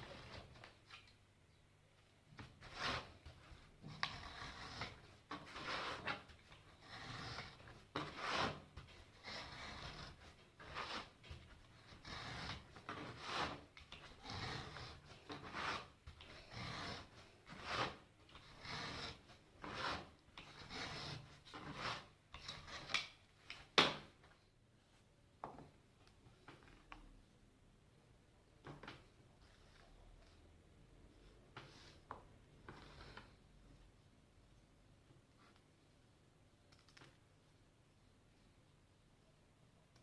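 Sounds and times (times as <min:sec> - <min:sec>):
hand sanding wood board: 0:02.6 - 0:22.1.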